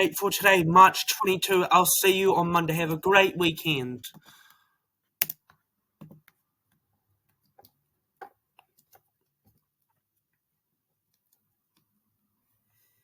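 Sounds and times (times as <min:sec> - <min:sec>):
computer keyboard clicks: 0:05.2 - 0:06.2.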